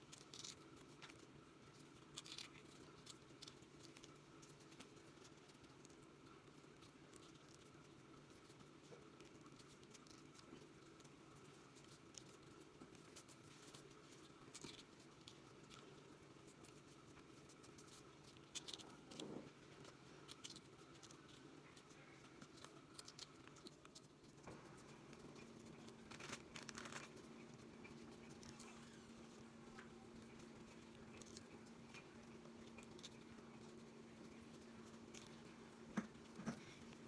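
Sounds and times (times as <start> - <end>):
low steady hum: 0.0 - 37.0
faint clicks and taps: 29.7 - 37.0.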